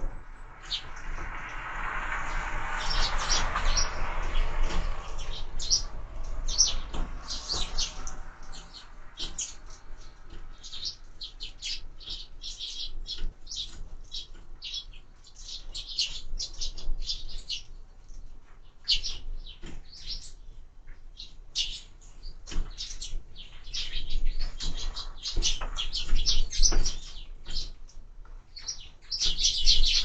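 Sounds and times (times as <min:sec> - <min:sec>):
soft rushing noise: 0:00.0 - 0:10.2
sparrows chirping: 0:00.0 - 0:30.0.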